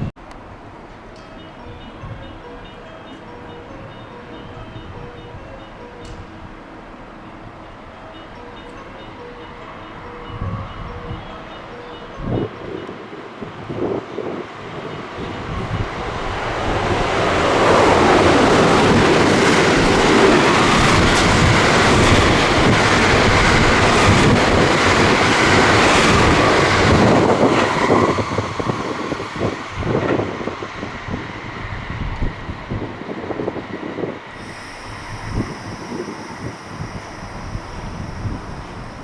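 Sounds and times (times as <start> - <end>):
electric train passing: 0.0 - 39.0.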